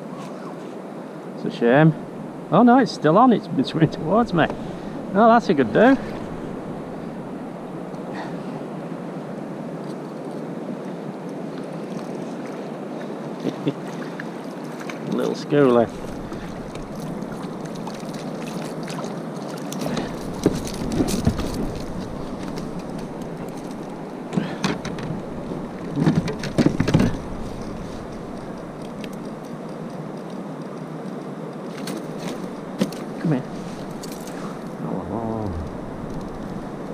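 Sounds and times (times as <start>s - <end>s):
wind and sea water rushing: 0.0s - 36.9s
gear knocking and rustling: 19.7s - 29.5s.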